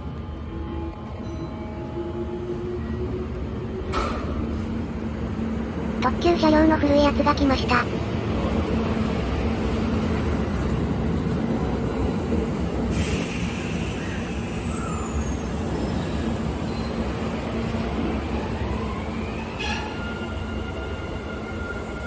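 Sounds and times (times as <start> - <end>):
train low rumble: 0.0 - 22.0
air brake hiss with whistle: 12.9 - 15.5.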